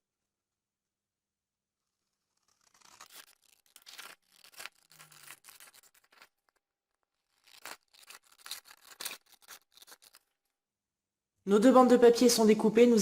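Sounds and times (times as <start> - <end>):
scissors snipping cardstock: 2.5 - 6.5, 7.2 - 10.3.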